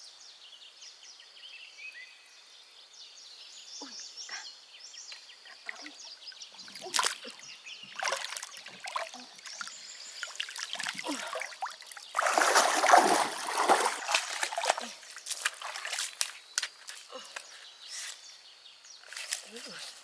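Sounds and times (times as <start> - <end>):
water splashing and sloshing: 5.5 - 17.0.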